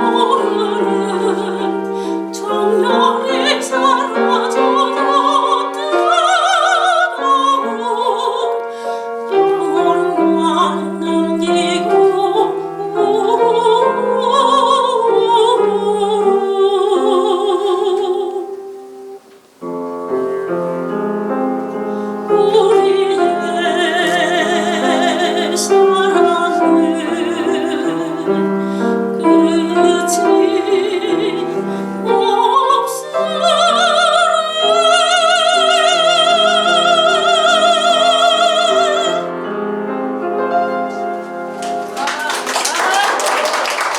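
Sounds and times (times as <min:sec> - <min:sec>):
soprano singing operatic style: 0:00.0 - 0:19.3, 0:21.3 - 0:43.9
piano accompaniment: 0:00.0 - 0:43.9.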